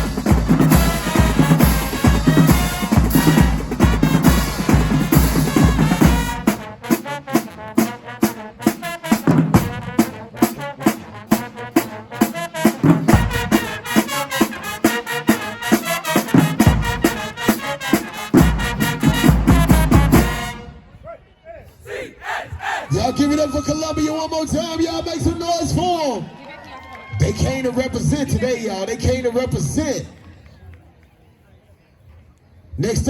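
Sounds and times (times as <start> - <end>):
marching band playing: 0.0 - 21.0
bass drum hits: 13.1 - 13.8.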